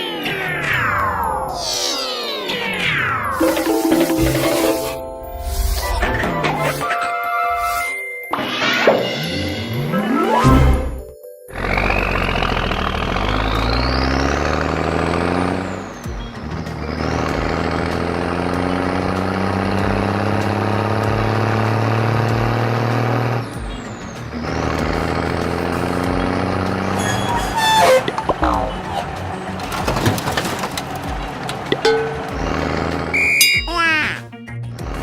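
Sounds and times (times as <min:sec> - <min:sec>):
truck engine running: 0:11.6 - 0:33.4.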